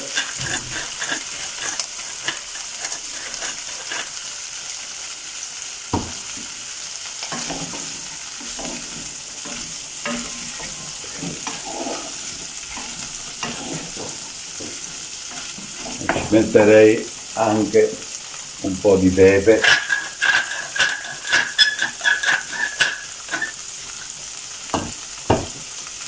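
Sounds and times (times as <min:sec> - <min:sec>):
wooden spoon scraping a pot: 0:00.0 - 0:04.5, 0:07.2 - 0:17.2, 0:19.2 - 0:24.2
chickpeas sizzling in hot oil: 0:00.0 - 0:26.0.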